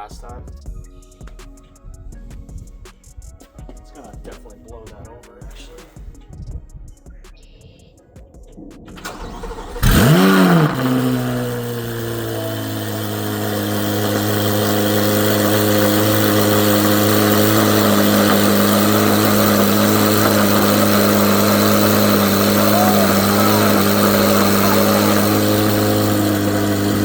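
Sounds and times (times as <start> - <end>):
car engine starting and idling: 8.8 - 27.0.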